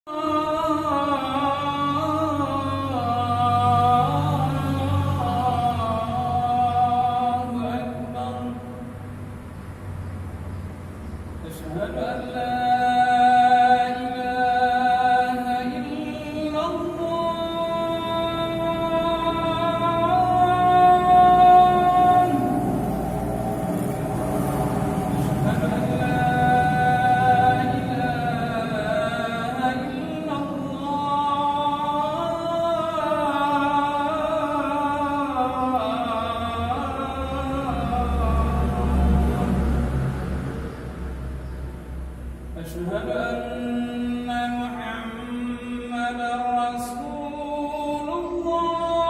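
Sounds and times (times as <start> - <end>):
man singing chant-like notes: 0.0 - 9.1, 11.4 - 40.5, 42.5 - 49.0.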